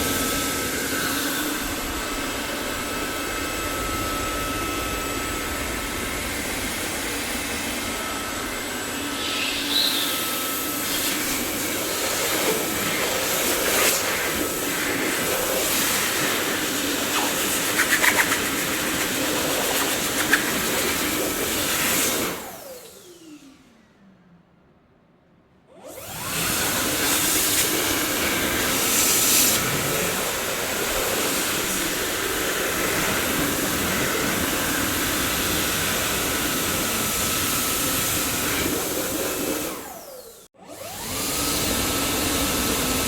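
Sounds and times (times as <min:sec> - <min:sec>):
vacuum cleaner running: 0:00.0 - 0:23.9, 0:25.7 - 0:43.0
motor winding down whine: 0:22.4 - 0:24.1.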